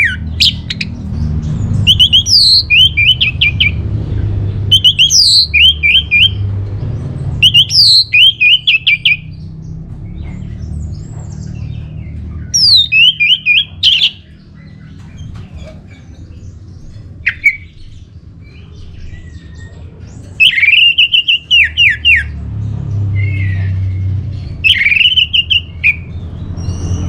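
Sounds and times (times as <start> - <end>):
thrush singing: 0.0 - 6.5, 7.4 - 9.4, 11.5 - 15.3, 17.0 - 27.0.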